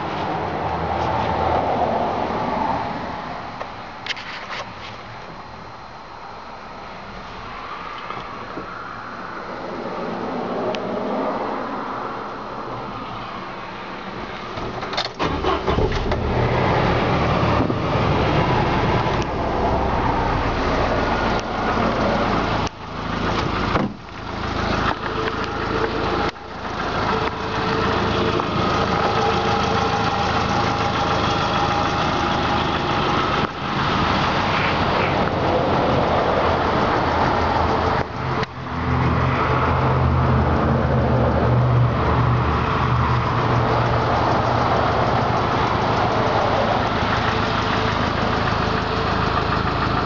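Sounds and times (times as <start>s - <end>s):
car engine starting and idling: 12.2s - 50.0s.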